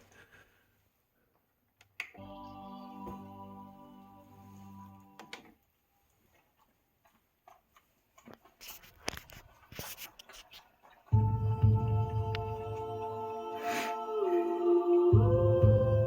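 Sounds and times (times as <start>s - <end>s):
soft rubbing and clicking: 6.1s - 11.0s.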